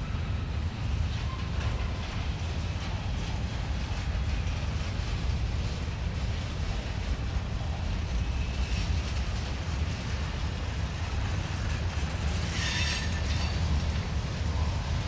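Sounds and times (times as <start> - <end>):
steel wheels rumbling on rails: 0.0 - 15.0
high wheel squeal: 12.3 - 13.8.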